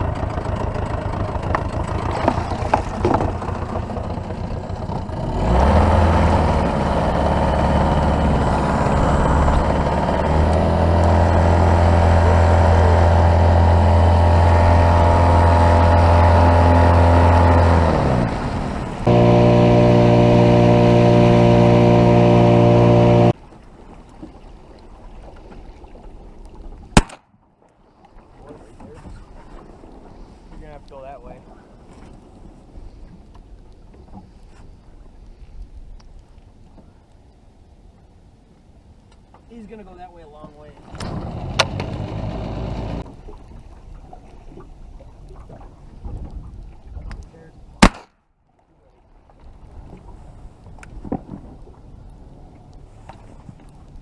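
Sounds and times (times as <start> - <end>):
boat motor running: 0.0 - 23.4, 40.8 - 43.2.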